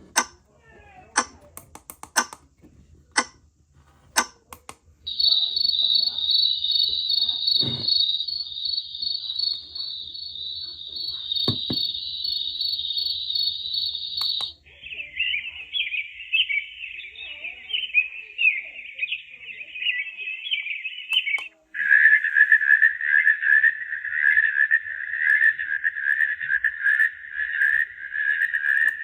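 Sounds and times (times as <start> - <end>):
sharp clicks: 0.1 - 0.4, 1.2 - 2.5, 3.2 - 3.4, 4.2 - 4.8, 14.0 - 14.6
recorded cricket chirring: 4.8 - 29.0
birdsong twittering: 5.1 - 29.0.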